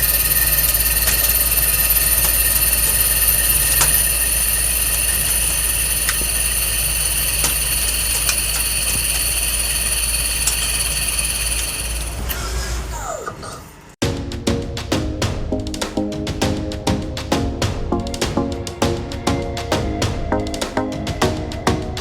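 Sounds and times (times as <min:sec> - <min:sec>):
lathe high-pitched whine: 0:00.0 - 0:12.4.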